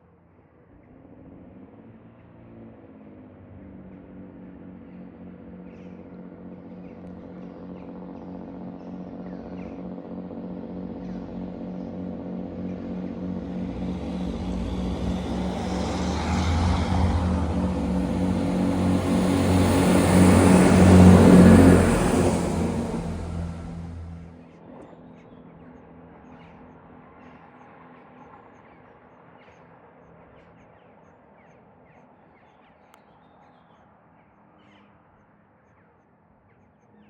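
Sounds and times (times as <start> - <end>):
diesel train engine: 10.6 - 24.4.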